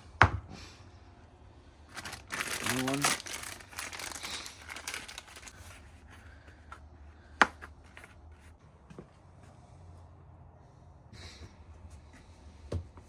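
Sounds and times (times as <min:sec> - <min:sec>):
packaging rustling: 0:01.9 - 0:05.9.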